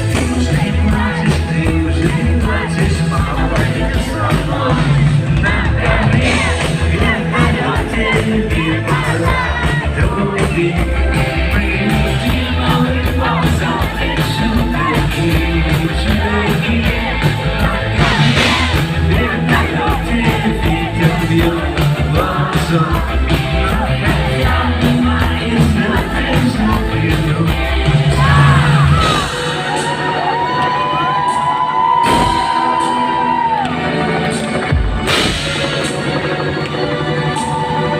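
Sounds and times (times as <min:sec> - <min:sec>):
person singing: 0:00.0 - 0:34.3
live rock band playing: 0:00.0 - 0:37.9.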